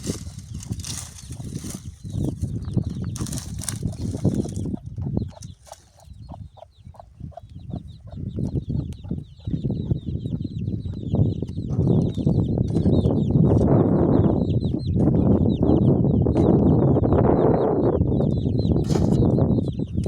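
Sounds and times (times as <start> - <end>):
rough rustling: 0.0 - 4.7
chickens clucking: 0.0 - 20.0
chicks peeping: 0.0 - 20.0.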